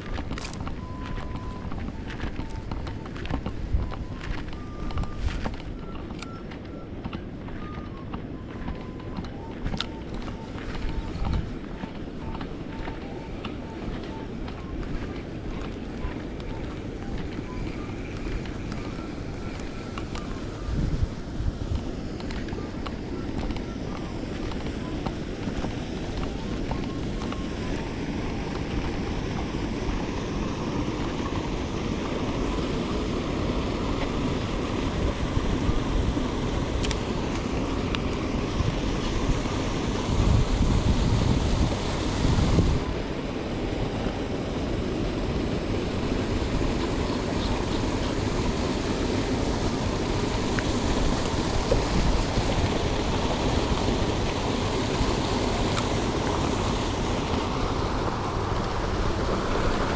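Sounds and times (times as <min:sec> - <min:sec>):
seawater rushing from outflow: 0:00.0 - 0:59.9
wind buffeting microphone: 0:00.0 - 0:59.9.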